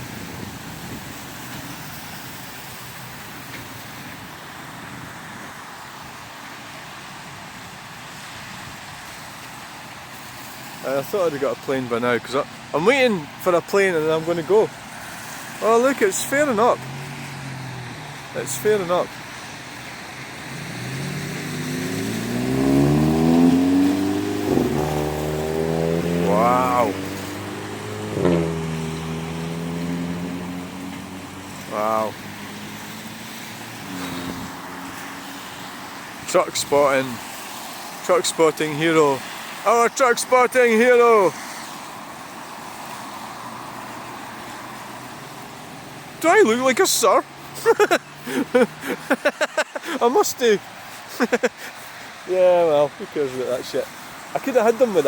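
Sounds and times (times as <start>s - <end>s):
cars and trucks passing: 0.0s - 55.0s
vehicle engine accelerating past: 20.2s - 35.5s.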